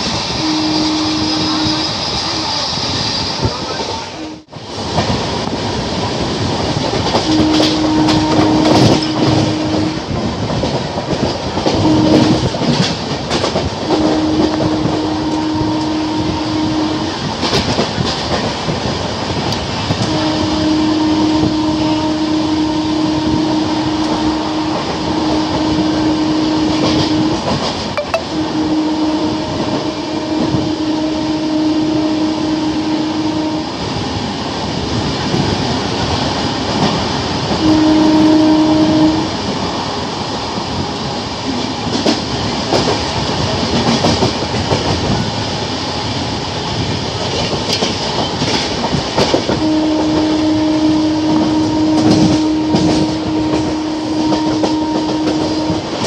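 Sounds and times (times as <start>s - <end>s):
locomotive horn blasts: 0.3s - 2.5s, 7.2s - 10.4s, 11.6s - 12.9s, 13.9s - 17.4s, 20.0s - 34.1s, 37.6s - 39.5s, 49.5s - 56.0s
train wheels clattering on rails: 4.7s - 15.1s, 17.0s - 20.2s, 39.3s - 50.4s, 51.4s - 56.0s.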